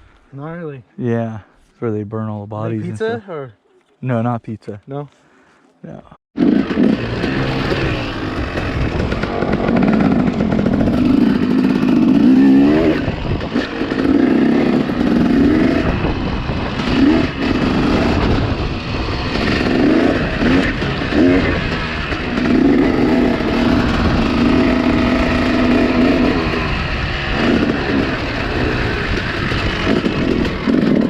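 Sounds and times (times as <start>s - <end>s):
dirt bike engine revving: 6.4s - 31.0s.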